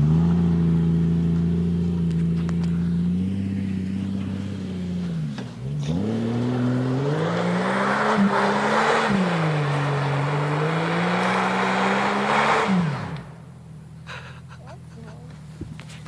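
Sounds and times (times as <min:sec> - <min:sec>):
engine revving hard: 0:05.6 - 0:13.3.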